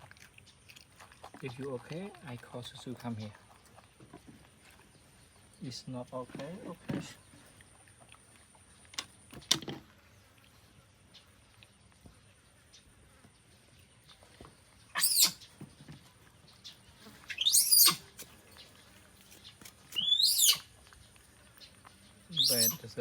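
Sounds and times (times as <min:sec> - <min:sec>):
monkey squealing: 0:14.9 - 0:15.4, 0:17.2 - 0:18.2, 0:20.0 - 0:20.7, 0:22.3 - 0:22.8.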